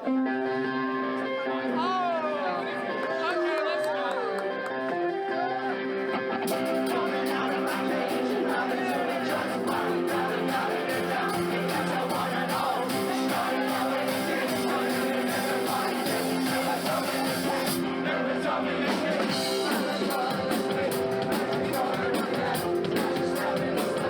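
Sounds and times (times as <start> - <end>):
electric guitar: 0.0 - 24.0
drums and cymbals: 6.5 - 18.0, 18.8 - 24.0
person singing: 6.5 - 24.0.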